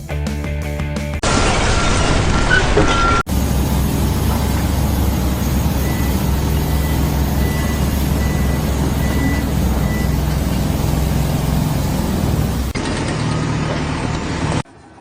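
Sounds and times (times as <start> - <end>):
heavy engine droning: 3.0 - 14.6.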